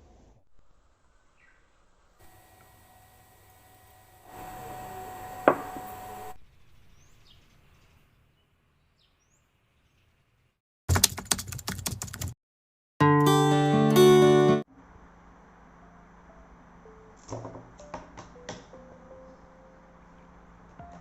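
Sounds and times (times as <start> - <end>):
rapid clicks and taps: 10.9 - 12.4
plucked guitar-like music: 13.0 - 14.6.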